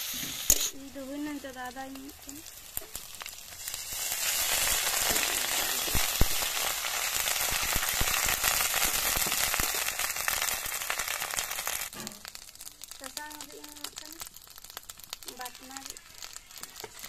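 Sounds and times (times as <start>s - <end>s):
metal spatula scraping a pan: 0.0s - 0.9s, 11.9s - 12.3s
onions sizzling in hot oil: 0.0s - 17.0s.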